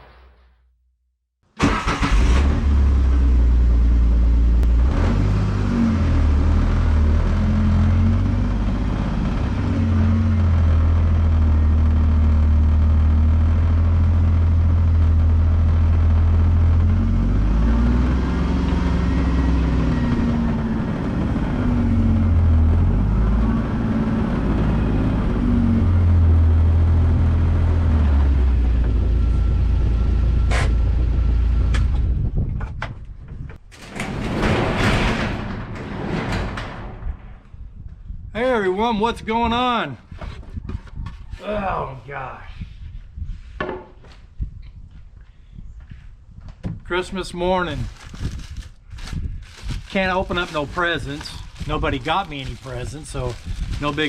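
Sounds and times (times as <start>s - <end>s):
vehicle engine revving: 1.6s - 31.8s.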